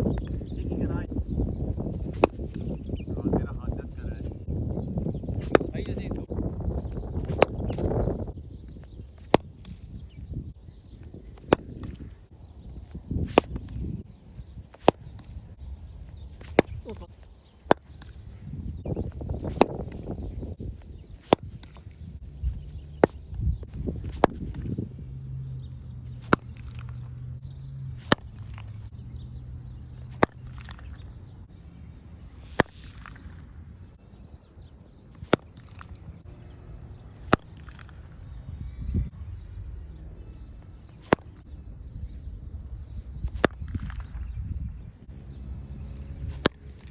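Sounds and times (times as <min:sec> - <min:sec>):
cricket bat striking ball: 0:00.0 - 0:25.0, 0:26.1 - 0:27.1, 0:28.0 - 0:28.8, 0:30.0 - 0:31.0, 0:32.4 - 0:33.4, 0:34.9 - 0:36.0, 0:37.2 - 0:38.0, 0:40.8 - 0:41.4, 0:43.2 - 0:44.0, 0:46.3 - 0:46.9.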